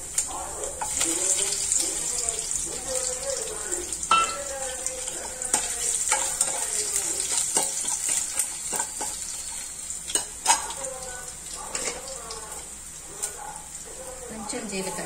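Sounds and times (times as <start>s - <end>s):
food sizzling in hot oil: 0.0s - 15.0s
spoon knocking against pan: 4.1s - 4.5s
metal spoon scraping pan: 4.1s - 11.0s, 11.6s - 12.6s.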